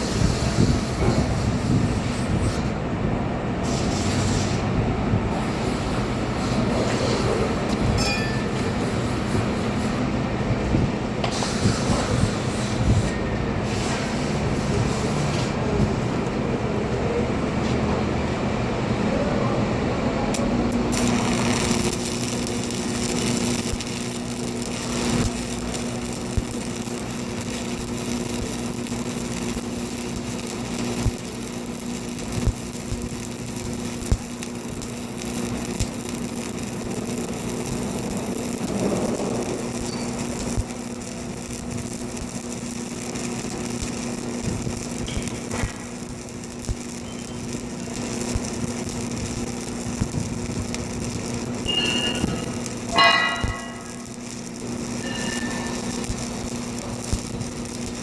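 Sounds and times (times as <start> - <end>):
welding arc crackling hiss: 0.0 - 19.0, 20.1 - 58.0
constant hum: 14.5 - 58.0.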